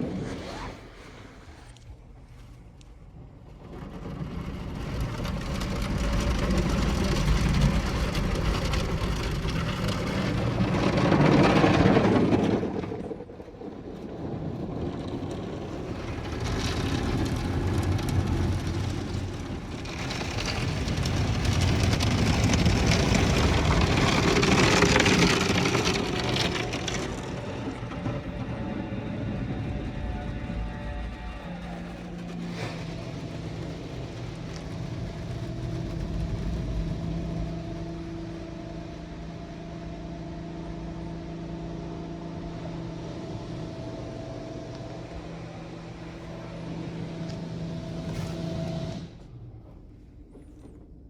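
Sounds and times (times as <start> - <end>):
low steady rumble: 0.0 - 51.0
high-pressure water spraying car: 15.3 - 45.0.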